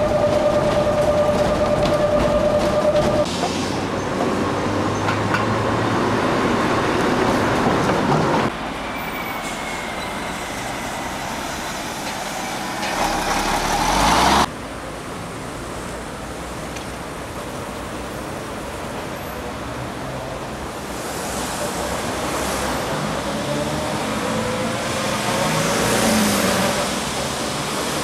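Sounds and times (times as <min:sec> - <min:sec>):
train running noise: 0:00.0 - 0:14.5.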